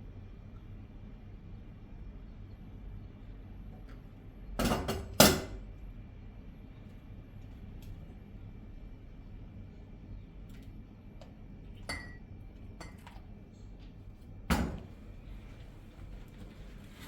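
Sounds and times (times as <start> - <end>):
dishes clinking: 4.6 - 5.6, 11.8 - 12.2.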